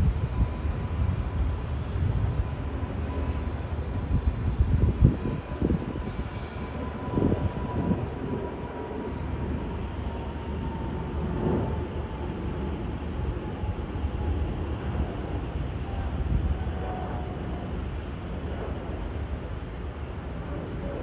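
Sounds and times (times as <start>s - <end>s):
jet airliner passing overhead: 0.0s - 21.0s.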